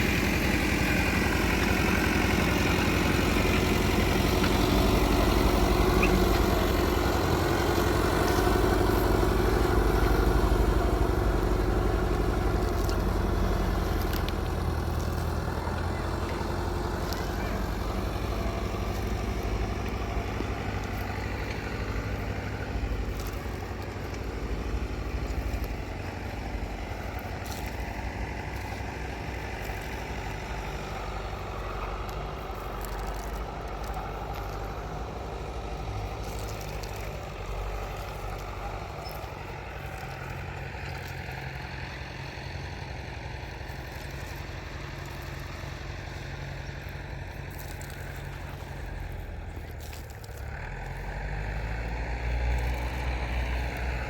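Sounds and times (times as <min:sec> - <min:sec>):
engine running low hum: 0:00.0 - 0:54.0.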